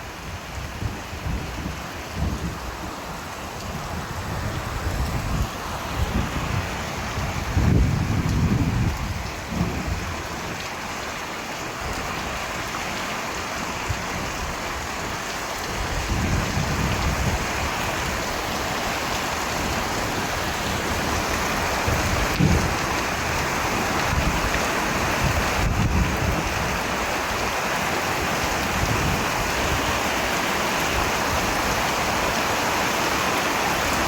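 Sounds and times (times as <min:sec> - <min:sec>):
steady rain falling: 0:00.0 - 0:34.0
low rumbles of thunder: 0:07.1 - 0:10.2, 0:21.9 - 0:23.0.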